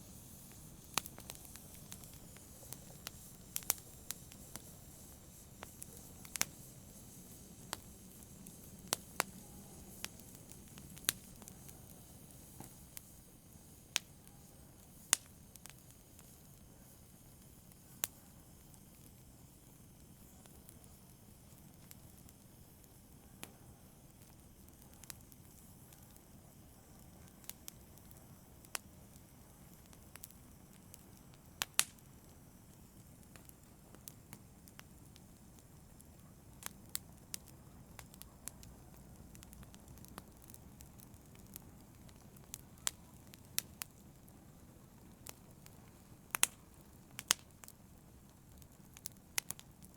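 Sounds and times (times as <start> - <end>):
soft steady hiss: 0.0 - 49.9
wood fire crackling: 0.0 - 49.9
sharp fire pops: 0.1 - 13.2, 13.9 - 16.4, 27.0 - 49.9.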